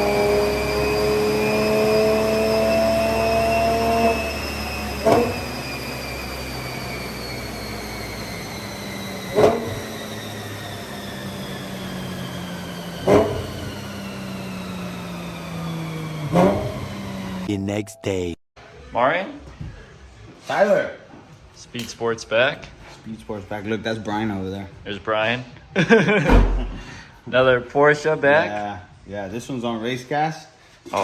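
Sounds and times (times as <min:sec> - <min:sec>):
dyno rollers whining: 0:00.0 - 0:17.5
race car engine on dyno: 0:00.0 - 0:17.5
engine throttle blips: 0:00.0 - 0:18.0.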